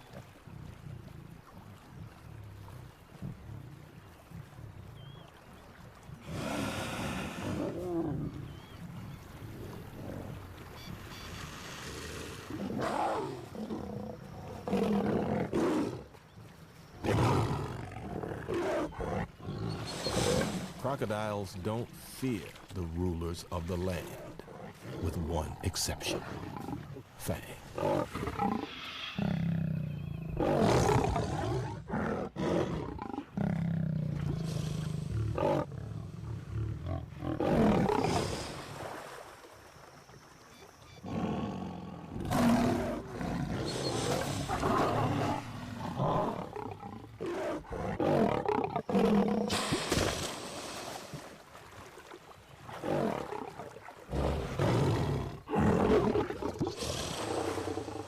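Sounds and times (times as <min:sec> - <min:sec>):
lion growling and roaring: 0:06.2 - 0:08.7, 0:12.2 - 0:16.1, 0:17.0 - 0:20.8, 0:27.8 - 0:38.4, 0:41.0 - 0:49.6, 0:52.7 - 0:58.0.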